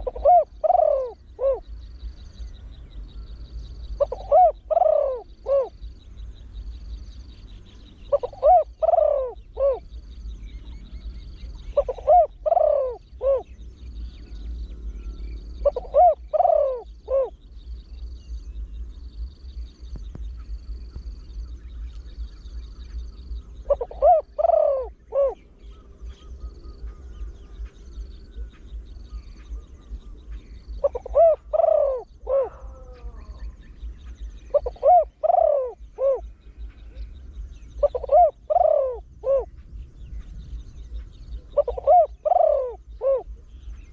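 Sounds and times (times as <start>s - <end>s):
dove cooing: 0.0s - 2.5s, 3.8s - 6.3s, 8.0s - 10.8s, 11.4s - 13.6s, 15.6s - 17.5s, 22.9s - 39.8s, 40.8s - 43.9s.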